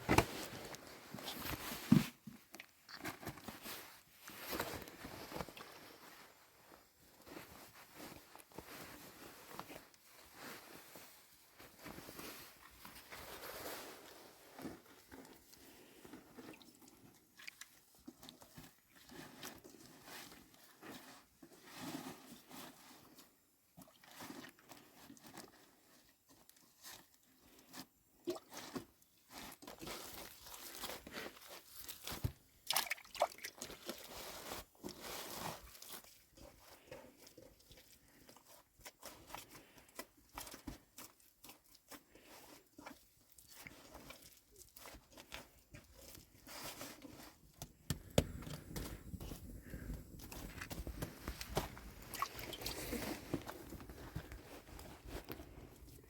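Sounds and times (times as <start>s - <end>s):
crunching and clicking handling noises: 34.8s - 56.0s.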